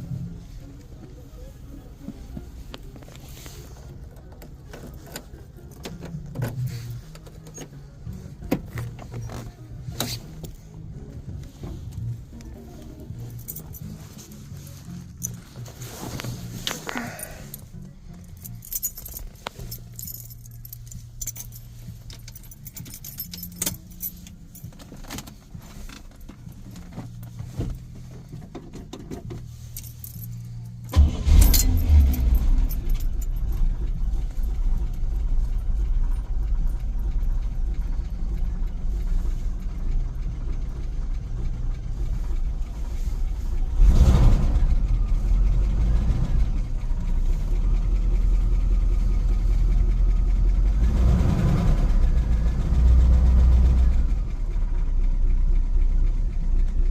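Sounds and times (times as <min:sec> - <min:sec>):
car engine starting and idling: 0:00.0 - 0:56.9
keys jangling and clicking: 0:12.7 - 0:37.1.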